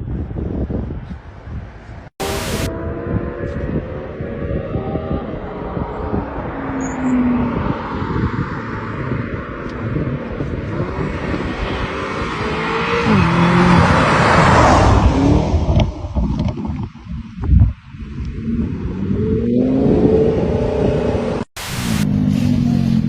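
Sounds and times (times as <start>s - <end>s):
road and wind noise: 0.0s - 23.0s
vehicle engine accelerating: 2.2s - 16.2s.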